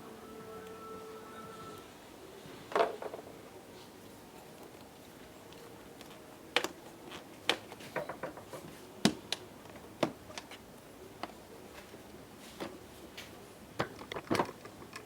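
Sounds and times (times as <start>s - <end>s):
plastic parts clicking and knocking: 2.7s - 3.3s, 7.4s - 11.4s, 13.8s - 15.0s.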